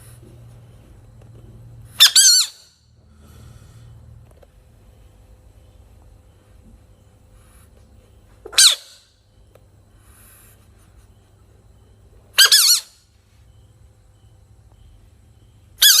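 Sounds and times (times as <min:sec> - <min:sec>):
frog squeaking: 0:02.0 - 0:02.7, 0:08.5 - 0:09.1, 0:12.4 - 0:13.0, 0:15.8 - 0:16.0.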